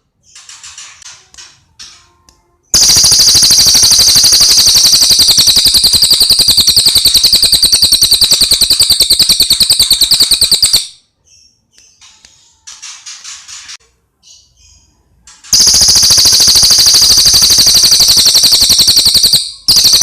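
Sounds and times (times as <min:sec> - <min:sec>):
songbird rapid trill: 0:02.8 - 0:11.0, 0:15.5 - 0:20.0.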